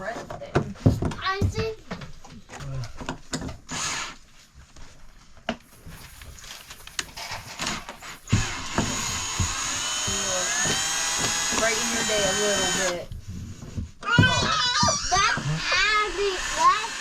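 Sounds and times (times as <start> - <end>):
small electric motor whining: 7.2 - 13.1, 14.8 - 17.0.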